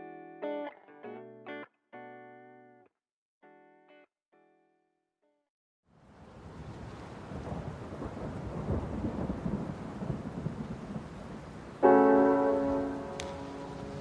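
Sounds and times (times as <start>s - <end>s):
rain: 5.9s - 14.0s
low rolling thunder: 6.2s - 14.0s
piano chord ringing: 11.8s - 14.0s.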